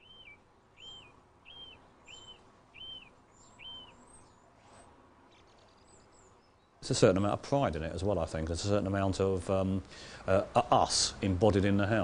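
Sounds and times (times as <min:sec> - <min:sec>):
thin high chirps: 0:00.0 - 0:04.0
bird calling faintly: 0:00.0 - 0:06.8.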